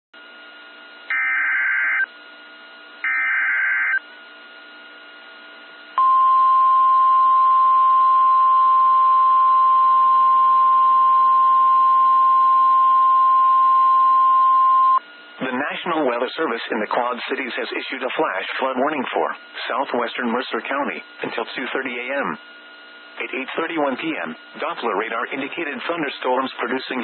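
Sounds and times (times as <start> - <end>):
steady single-pitch alarm tone: 1.0 - 2.2, 3.0 - 4.1, 6.0 - 15.1.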